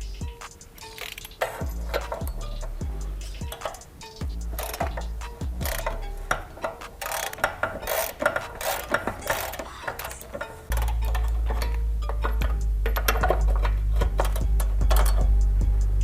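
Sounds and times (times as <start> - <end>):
hand tools clicking and knocking: 0.3 - 15.6
steady low drone: 1.6 - 3.5, 10.7 - 16.0.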